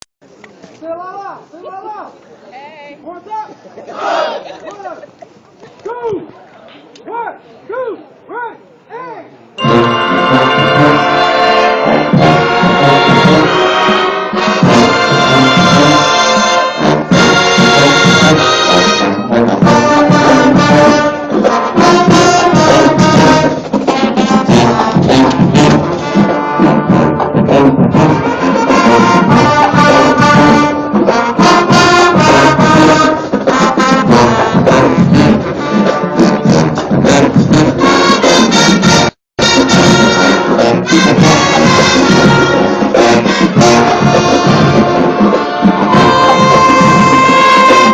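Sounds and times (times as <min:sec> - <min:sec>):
marching band playing loudly: 0:09.6 - 0:47.9
sharp percussion hits: 0:09.6 - 0:47.9
trombones and trumpets: 0:09.6 - 0:47.9.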